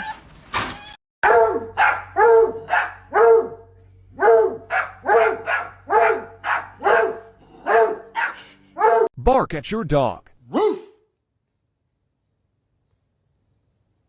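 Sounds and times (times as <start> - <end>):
dog barking: 1.2 - 9.1, 10.5 - 11.0.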